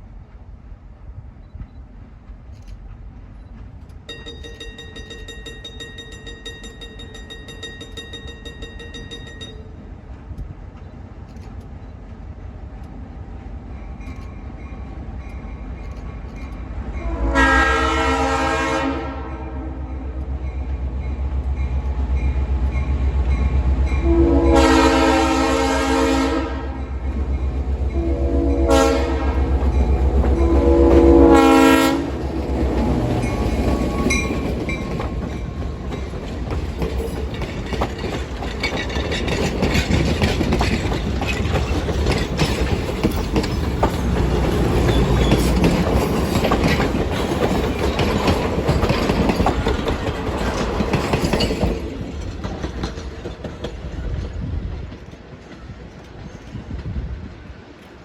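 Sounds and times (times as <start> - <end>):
train wheels clicking over rail joints: 0.0 - 18.1, 20.0 - 25.9, 28.7 - 58.0
locomotive horn: 17.0 - 20.4, 24.0 - 27.0, 27.7 - 34.1.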